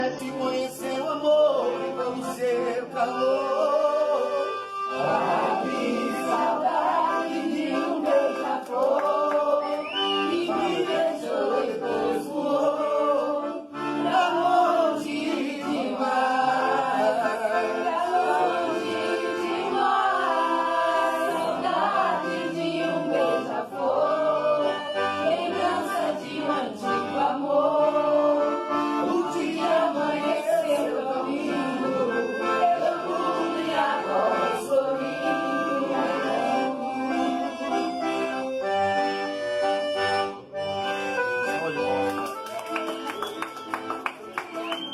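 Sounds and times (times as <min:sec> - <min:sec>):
two men singing in harmony: 0:00.0 - 0:37.2
accordion: 0:00.0 - 0:44.9.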